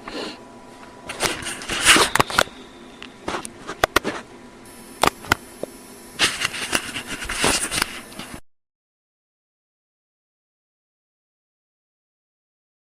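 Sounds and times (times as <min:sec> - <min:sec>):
rustling handling noise: 0:00.6 - 0:04.3, 0:06.2 - 0:08.4.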